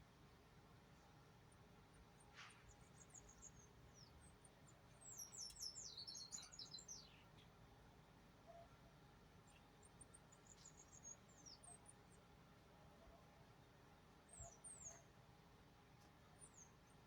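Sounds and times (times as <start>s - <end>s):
small birds chirping: 5.0s - 7.5s, 9.5s - 12.0s.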